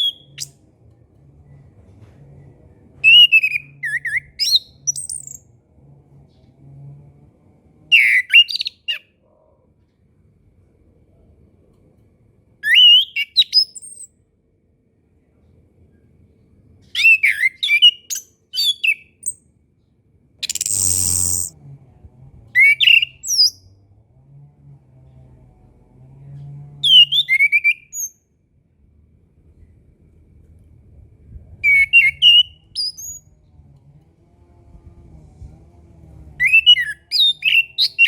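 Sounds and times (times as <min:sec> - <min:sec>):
thrush whistled chirps: 0:20.4 - 0:21.5.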